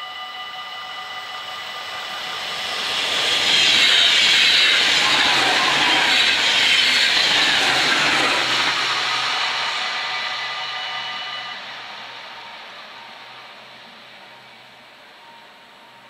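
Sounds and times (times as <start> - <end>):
crossing warning bells: 0.0 - 16.0
train rushing past: 1.2 - 15.8.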